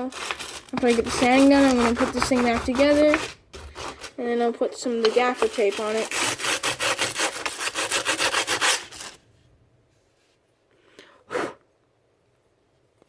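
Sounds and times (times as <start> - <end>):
sandpaper rubbing back and forth: 0.2 - 4.2, 5.0 - 9.2.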